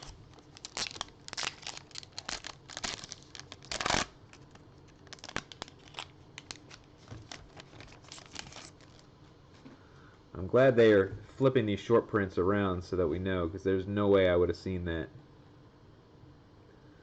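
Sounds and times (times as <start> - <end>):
wrapper crinkling: 0.0 - 9.1
wrapper ripping: 0.0 - 9.1.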